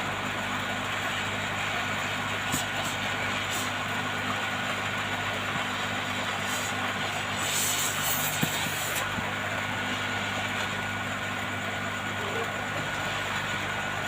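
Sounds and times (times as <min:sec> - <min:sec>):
hot air gun blowing: 0:02.5 - 0:03.8, 0:06.3 - 0:09.2.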